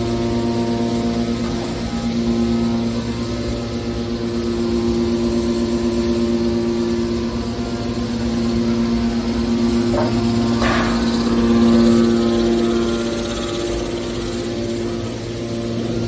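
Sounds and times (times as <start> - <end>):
baler motor humming: 7.7 - 16.0.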